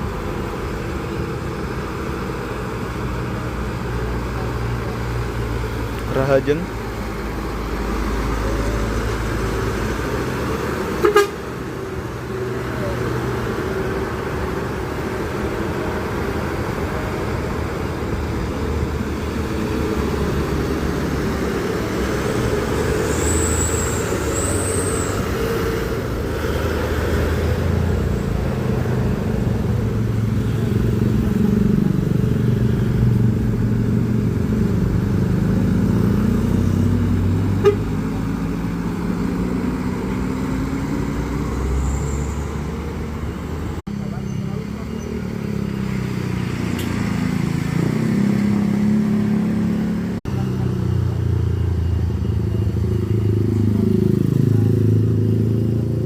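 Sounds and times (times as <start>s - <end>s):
truck engines passing: 0.0s - 56.0s
short high squeals: 23.0s - 25.4s.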